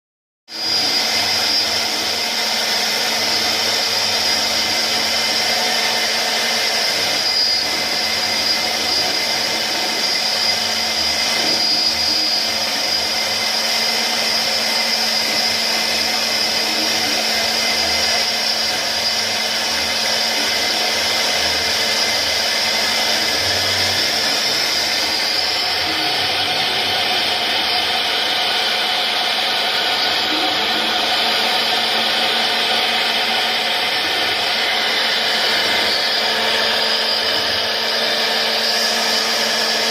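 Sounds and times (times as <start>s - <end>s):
router spindle whining: 0.5s - 39.9s.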